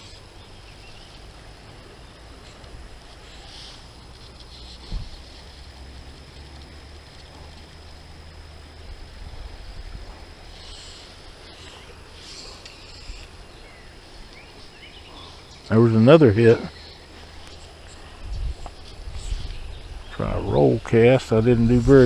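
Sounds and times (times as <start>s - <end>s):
wind rumble on microphone: 3.8s - 15.3s, 17.0s - 22.0s.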